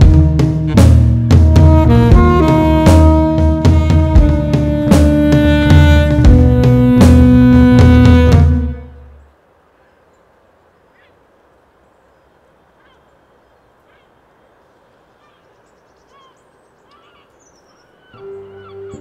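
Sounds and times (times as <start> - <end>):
soundtrack music: 0.0 - 9.0
faint background hiss: 0.0 - 19.0.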